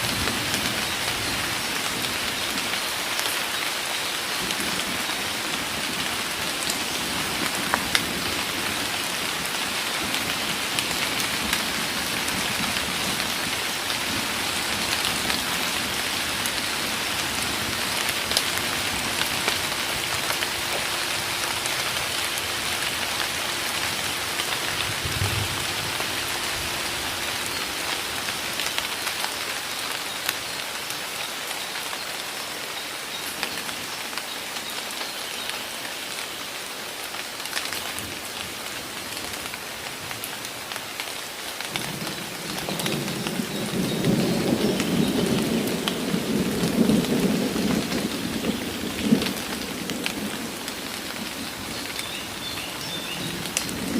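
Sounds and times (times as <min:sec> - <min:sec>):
heavy rain pattering: 0:00.0 - 0:53.9.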